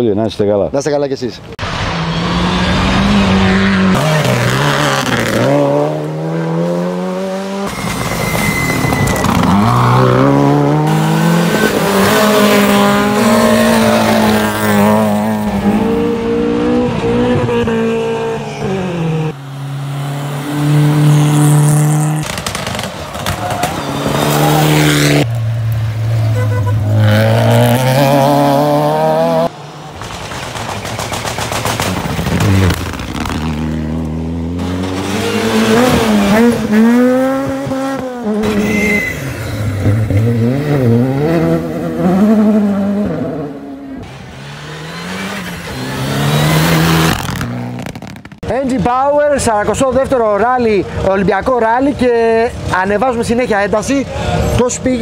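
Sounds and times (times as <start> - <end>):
rally car engines revving: 1.6 - 55.0.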